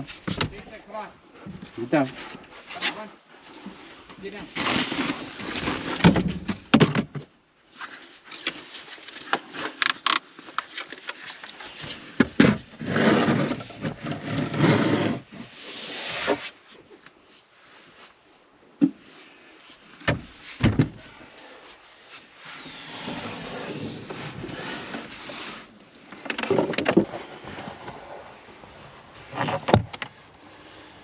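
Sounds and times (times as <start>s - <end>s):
knocks and thumps of handling: 0.0s - 0.7s
rustling: 0.0s - 6.7s, 7.6s - 31.0s.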